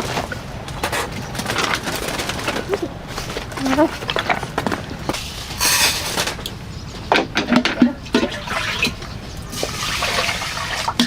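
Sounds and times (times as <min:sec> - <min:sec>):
water splashing and pouring: 0:07.5 - 0:11.0.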